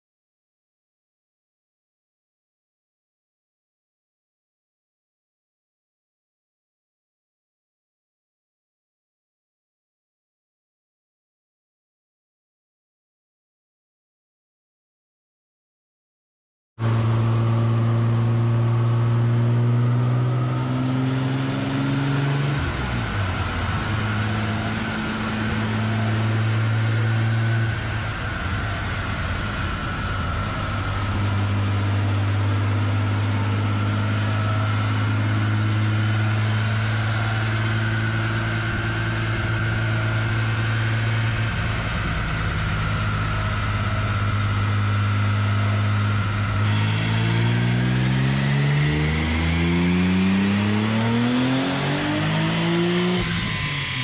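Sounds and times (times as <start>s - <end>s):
high whine: 16.8s - 54.0s
car engine idling: 22.7s - 47.4s.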